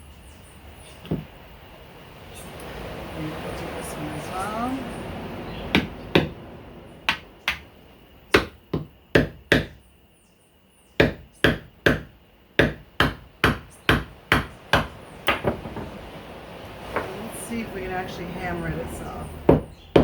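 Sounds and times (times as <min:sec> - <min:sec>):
hammer striking coconut: 0:05.7 - 0:06.4, 0:07.1 - 0:07.7, 0:08.3 - 0:09.8, 0:11.0 - 0:16.0, 0:19.5 - 0:20.0.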